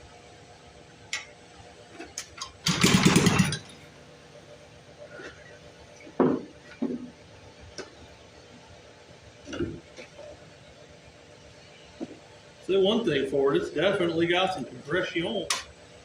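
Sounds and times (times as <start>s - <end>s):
engine pull-start turning over: 2.6s - 3.7s.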